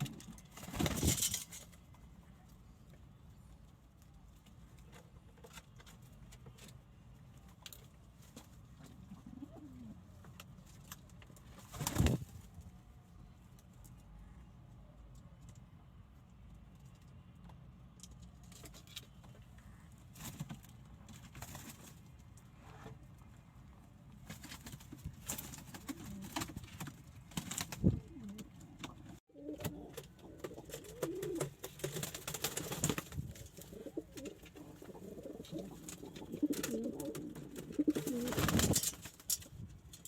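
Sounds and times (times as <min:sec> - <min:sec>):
pigeons cooing: 0:09.1 - 0:10.0, 0:33.5 - 0:38.4.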